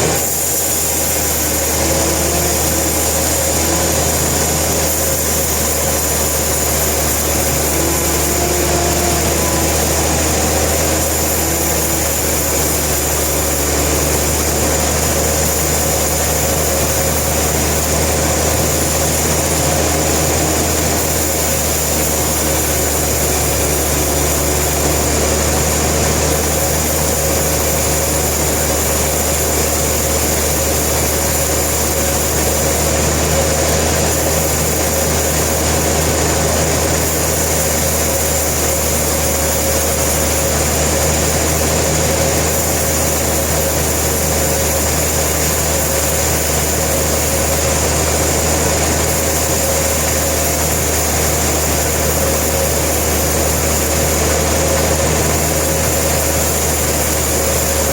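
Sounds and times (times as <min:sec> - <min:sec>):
high machine tones: 0:00.0 - 0:39.0
sawmill machinery humming: 0:00.0 - 0:57.9.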